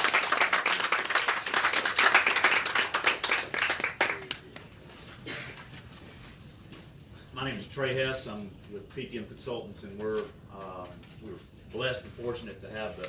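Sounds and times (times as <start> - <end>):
crowd applauding: 0.0 - 5.0.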